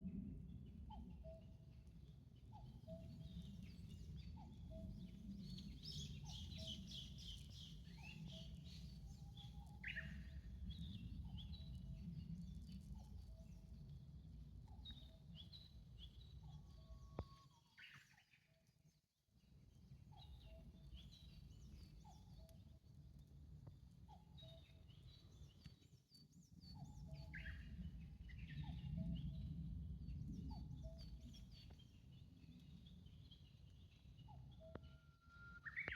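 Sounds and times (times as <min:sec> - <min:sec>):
faint low rumble: 0:00.0 - 0:17.4, 0:26.2 - 0:35.9.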